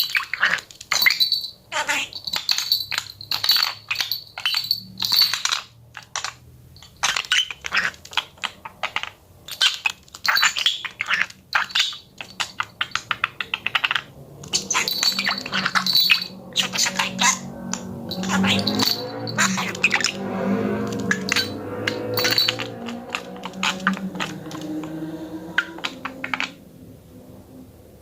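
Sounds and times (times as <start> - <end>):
budgerigar clicking and tapping: 2.3 - 20.2.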